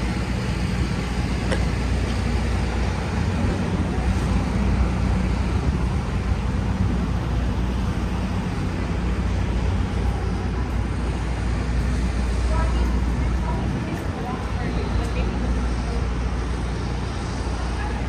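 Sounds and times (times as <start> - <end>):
road noise hiss: 0.0 - 18.0
street traffic rumble: 0.0 - 18.0.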